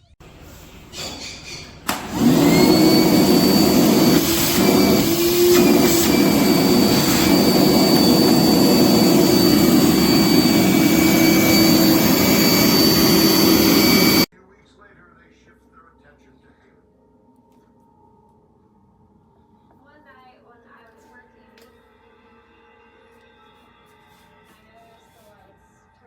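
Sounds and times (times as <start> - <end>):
shop vacuum motor whining: 0.3 - 14.3.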